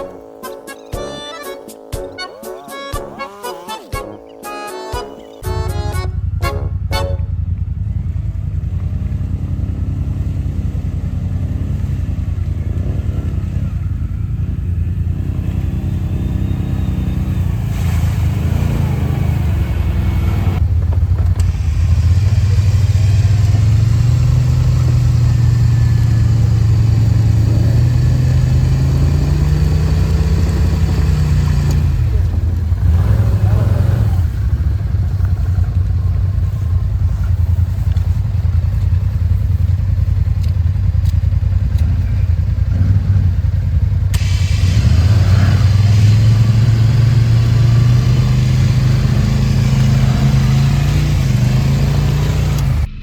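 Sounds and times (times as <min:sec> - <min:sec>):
atv engine running: 0:00.0 - 0:53.0.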